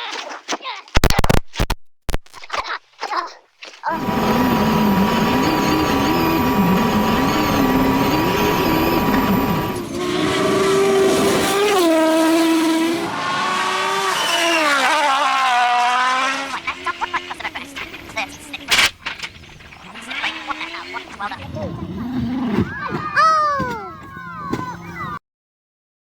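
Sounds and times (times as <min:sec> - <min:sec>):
rally car engines at full throttle: 0:03.9 - 0:25.2.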